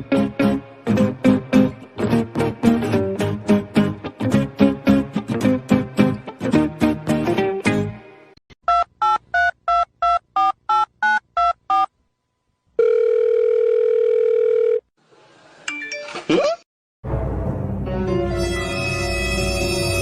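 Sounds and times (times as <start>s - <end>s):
music: 0.0s - 8.4s, 17.0s - 20.0s
telephone ringing tone: 12.8s - 14.9s.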